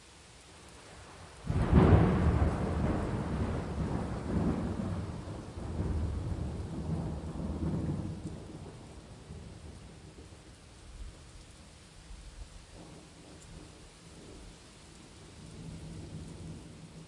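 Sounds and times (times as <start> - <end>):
steady rain: 0.0 - 17.0
thunder rumbling: 1.5 - 10.4.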